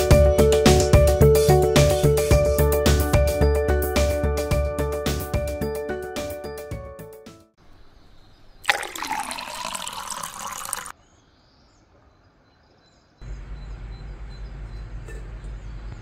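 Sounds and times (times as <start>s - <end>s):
water pouring into metal bowl: 8.6s - 10.9s.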